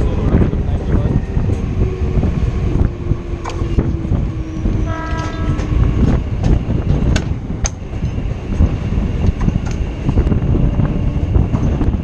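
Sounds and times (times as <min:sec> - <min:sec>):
electric train rumbling: 0:00.0 - 0:12.0
rail-joint clicks: 0:03.3 - 0:10.4
train horn note: 0:04.8 - 0:05.9.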